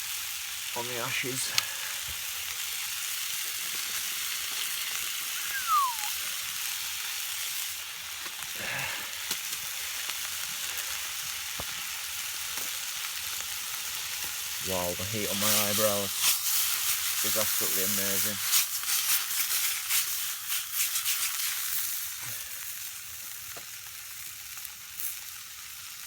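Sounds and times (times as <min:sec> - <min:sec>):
chicken sizzling in a wok: 0:00.0 - 0:26.0
short falling whistle: 0:05.4 - 0:06.2.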